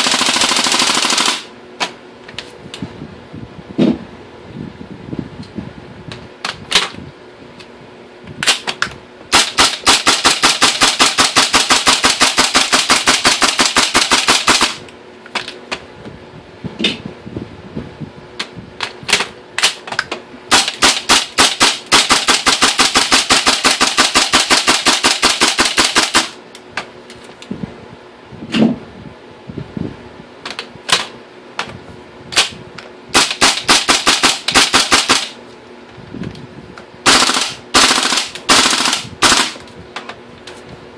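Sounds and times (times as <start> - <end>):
airsoft rifle firing: 0.0 - 1.5, 9.3 - 14.8, 20.5 - 26.4, 32.4 - 35.4, 37.0 - 39.6.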